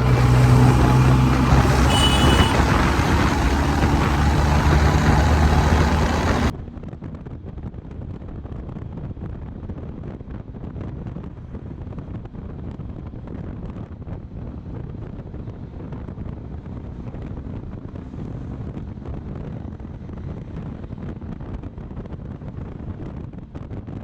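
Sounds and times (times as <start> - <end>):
high horn beep: 0.0 - 6.5
motorcycle engine hum: 0.0 - 8.4
wind and road noise: 0.0 - 24.0.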